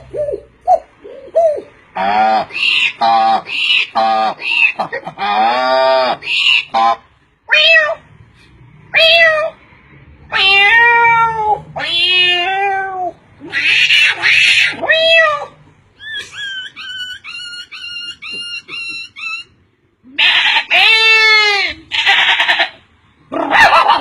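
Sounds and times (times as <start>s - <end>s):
person imitating cat meows: 7.5s - 8.0s, 8.9s - 9.6s, 10.3s - 15.6s.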